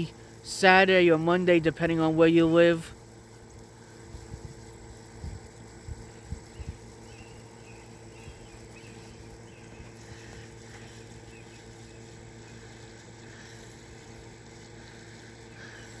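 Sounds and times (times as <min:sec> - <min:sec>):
steady background hum: 0:00.0 - 0:16.0
faint bird chirps: 0:06.0 - 0:12.8.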